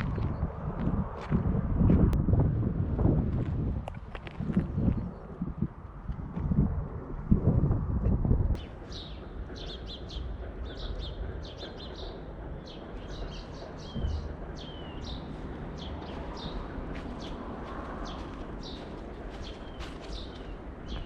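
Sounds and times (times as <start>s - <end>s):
low wind rumble: 0.0s - 21.0s
small birds chirping: 8.6s - 21.0s
loud low gust or bump: 13.8s - 15.2s.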